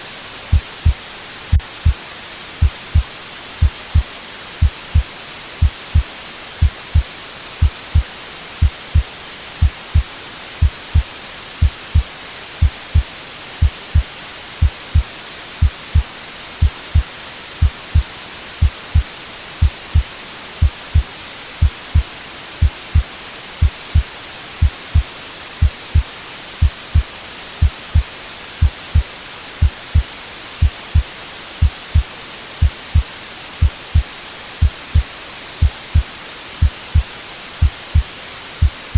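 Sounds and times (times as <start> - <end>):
white noise hiss: 0.0 - 38.9
heartbeat thumps: 0.5 - 2.0, 2.6 - 38.9.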